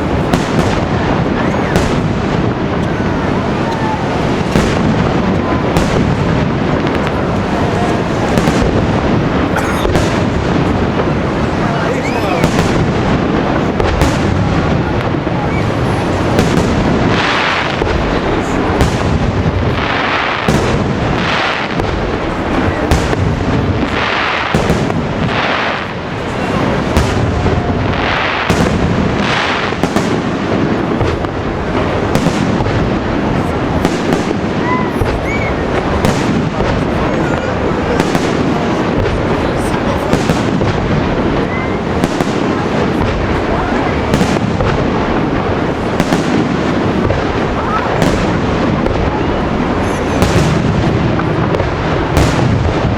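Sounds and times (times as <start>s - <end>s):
crackling fireworks bursts: 0.0s - 52.9s
sharp fireworks bangs: 0.0s - 52.9s
firework whistles: 34.6s - 36.2s.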